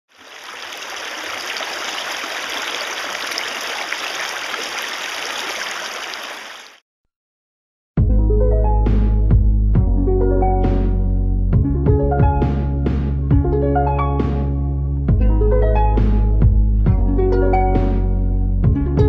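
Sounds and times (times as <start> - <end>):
river water over rapids: 0.1 - 6.8
background music: 8.0 - 19.0.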